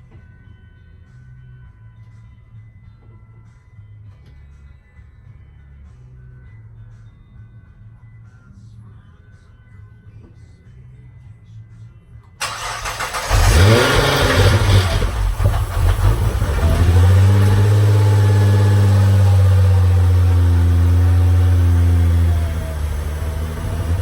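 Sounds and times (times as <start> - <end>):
car engine starting and idling: 12.4 - 24.0.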